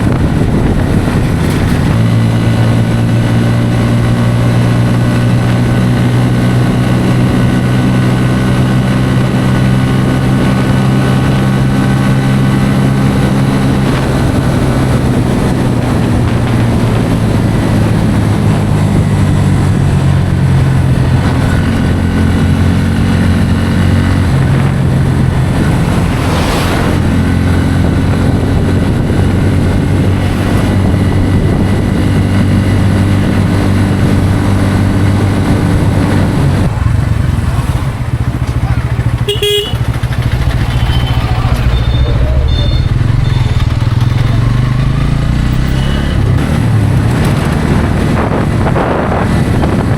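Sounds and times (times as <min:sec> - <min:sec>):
motorcycle engine running: 0:00.0 - 0:49.9
rush of noise: 0:20.9 - 0:38.2.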